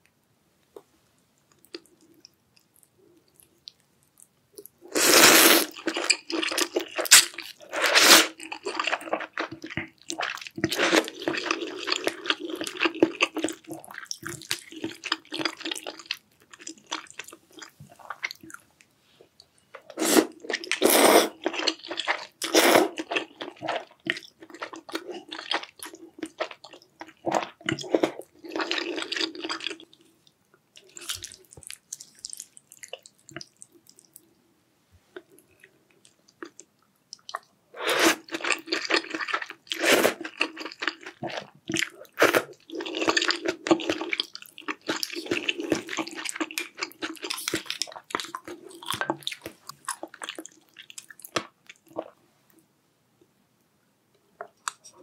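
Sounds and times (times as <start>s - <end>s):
wet slurping of noodles: 4.9s - 5.8s, 7.8s - 8.4s.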